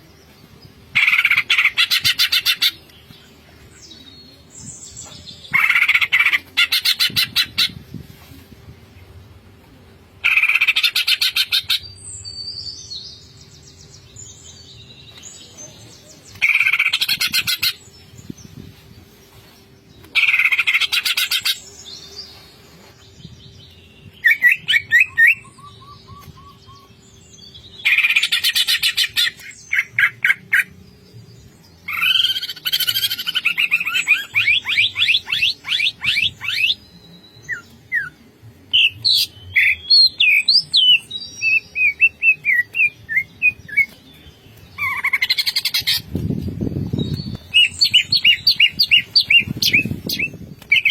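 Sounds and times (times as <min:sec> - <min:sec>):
bird singing rattling trills: 0:38.8 - 0:50.9.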